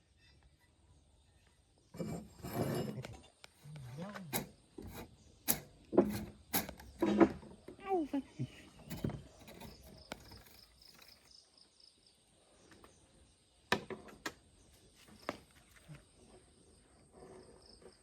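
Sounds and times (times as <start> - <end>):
faint insect chirping: 0.0 - 18.0
sharp clicks and knocks: 3.0 - 7.5, 8.8 - 11.2.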